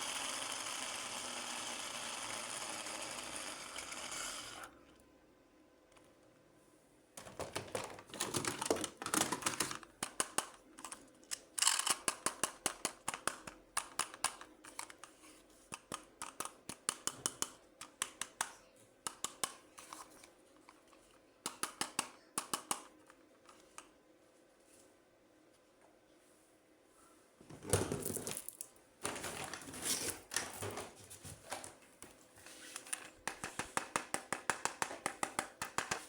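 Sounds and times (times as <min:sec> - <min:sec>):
packaging rustling: 0:07.3 - 0:09.9.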